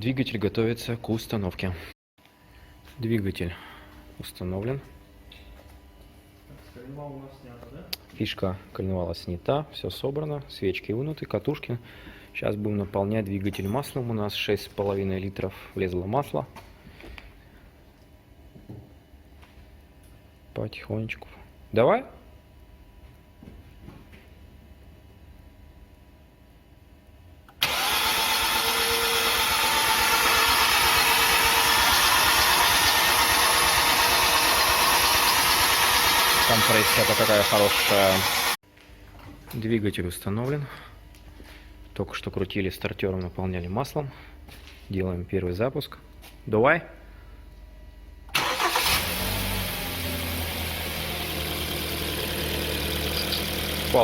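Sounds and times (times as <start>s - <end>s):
starter motor cranking engine: 27.6s - 38.6s, 48.3s - 54.0s.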